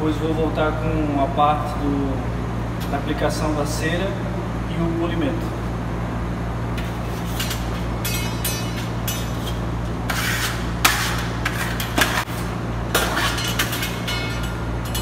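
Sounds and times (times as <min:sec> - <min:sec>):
steady low hum: 0:00.0 - 0:15.0
trowel scraping over a wall: 0:09.3 - 0:12.4.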